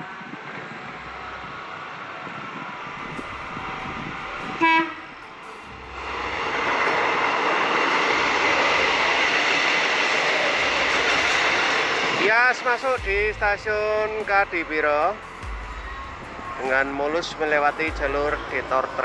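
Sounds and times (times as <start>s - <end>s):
train wheels rumbling on rails: 0.0s - 19.0s
train horn blast: 3.8s - 5.2s.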